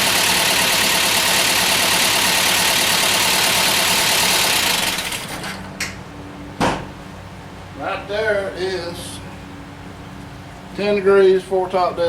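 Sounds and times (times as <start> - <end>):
engine running rough: 0.0 - 10.8
sharp knock: 6.6 - 6.9.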